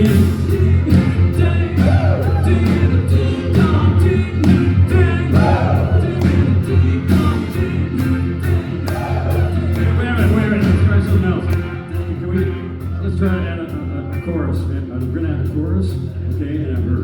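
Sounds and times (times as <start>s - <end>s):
voices singing together: 0.0s - 11.0s
live rock band playing: 0.0s - 17.0s.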